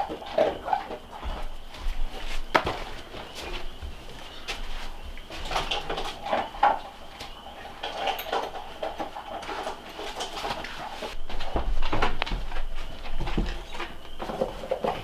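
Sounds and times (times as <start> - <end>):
things being handled: 0.0 - 15.0.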